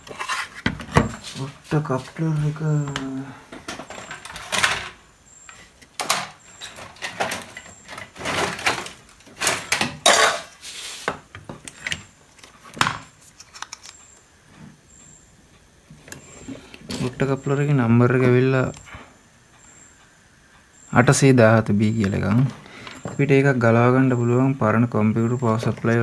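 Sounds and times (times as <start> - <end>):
small parts and tools clattering: 2.9 - 14.1, 21.9 - 23.4.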